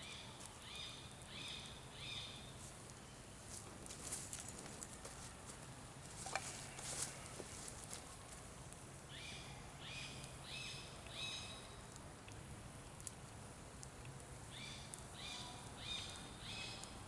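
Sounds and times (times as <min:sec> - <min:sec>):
clicks and crackles: 0:11.8 - 0:14.3.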